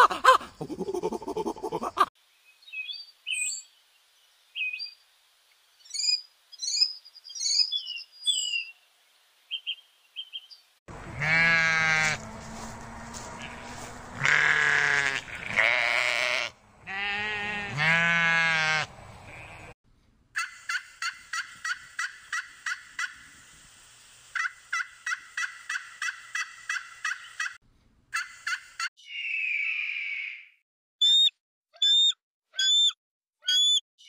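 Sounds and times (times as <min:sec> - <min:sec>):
buzzard mewing call: 0:10.9 - 0:12.3, 0:13.0 - 0:19.7
sheep bleating: 0:10.9 - 0:19.7.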